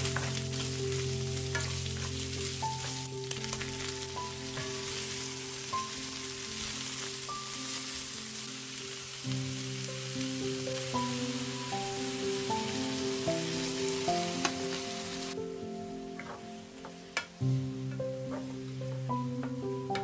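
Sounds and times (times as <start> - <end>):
metal tongs stirring food: 0.0 - 11.2
food sizzling in frying pan: 0.0 - 20.0
soft background music: 0.0 - 20.0.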